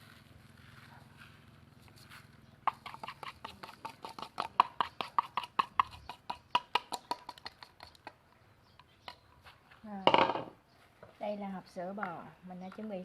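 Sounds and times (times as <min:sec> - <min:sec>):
utensil tapping a container: 0:02.7 - 0:08.2.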